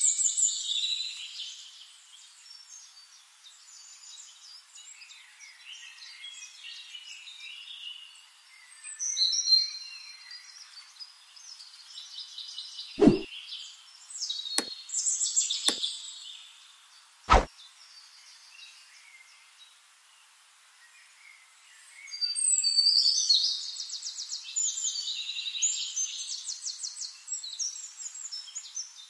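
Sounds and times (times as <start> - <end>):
dull thump: 13.0 - 13.3
sharp click: 13.0 - 13.3.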